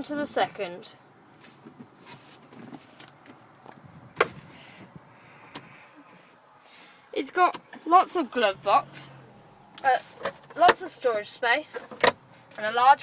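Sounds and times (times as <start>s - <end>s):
light rustling and knocks: 1.4s - 4.9s.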